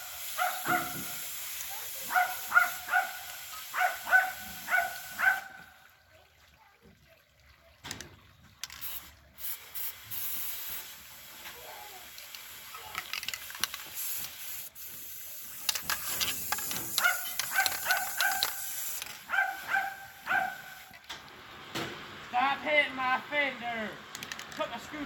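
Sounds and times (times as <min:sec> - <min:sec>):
spray paint hissing: 0:00.0 - 0:05.4, 0:08.6 - 0:21.0.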